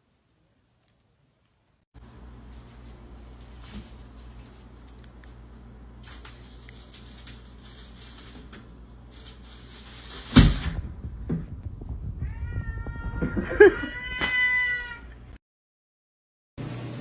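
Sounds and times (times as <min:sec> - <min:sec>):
loud thump: 0:10.3 - 0:12.1
cat yowling meow: 0:12.2 - 0:15.2.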